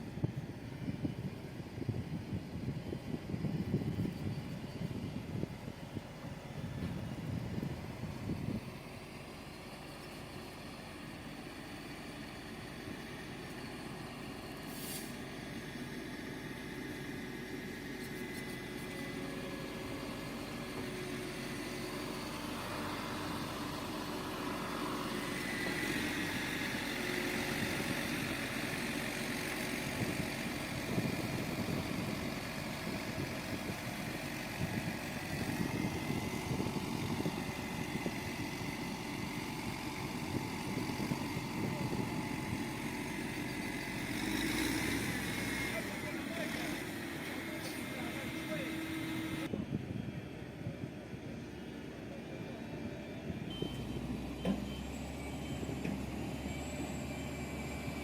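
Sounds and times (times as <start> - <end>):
construction machinery engine whining: 0.0 - 58.0.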